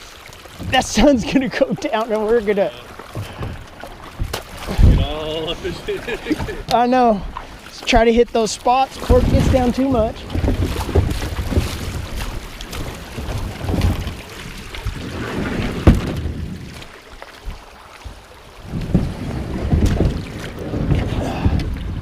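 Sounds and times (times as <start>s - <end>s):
wind gusting on microphone: 4.6s - 6.6s, 18.6s - 22.0s.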